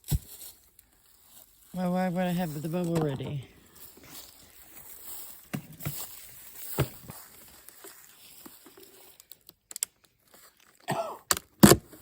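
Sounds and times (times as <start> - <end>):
person coughing: 10.8 - 11.3.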